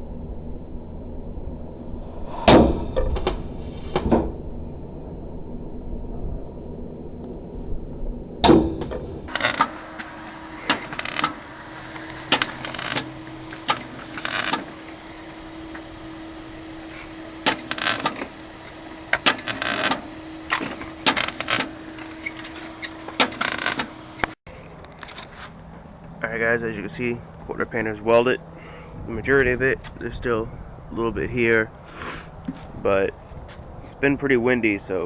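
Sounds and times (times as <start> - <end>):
welding arc crackling: 9.3 - 25.1
steady low hum: 9.3 - 35.0.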